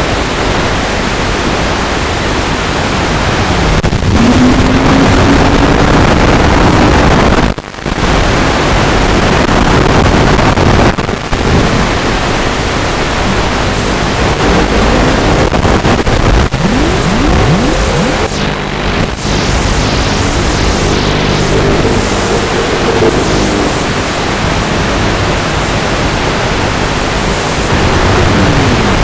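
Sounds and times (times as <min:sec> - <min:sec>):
heavy rushing noise: 0:02.8 - 0:29.0
quadcopter motors whining: 0:13.8 - 0:15.6, 0:16.4 - 0:24.6.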